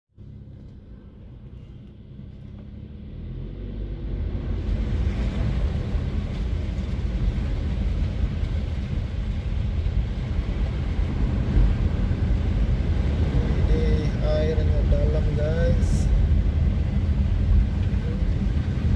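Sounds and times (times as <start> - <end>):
vehicle low rumble: 0.1 - 18.9.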